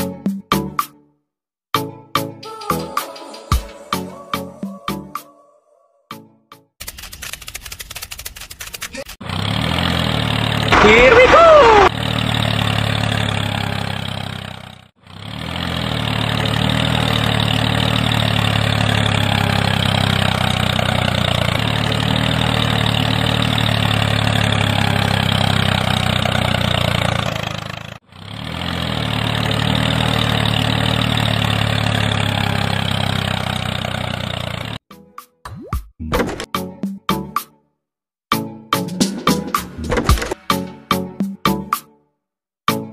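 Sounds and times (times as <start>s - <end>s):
small tractor motor humming: 9.2s - 34.8s.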